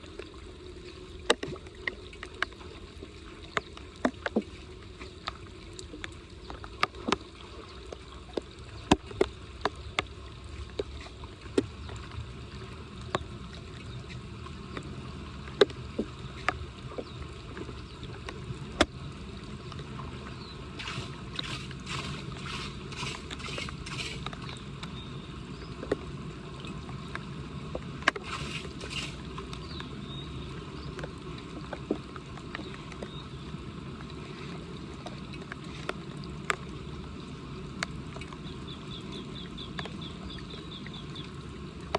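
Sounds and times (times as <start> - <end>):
water gurgling into drain: 20.4 - 24.6, 28.1 - 30.2
noisy strokes: 20.8 - 24.3, 28.2 - 29.2.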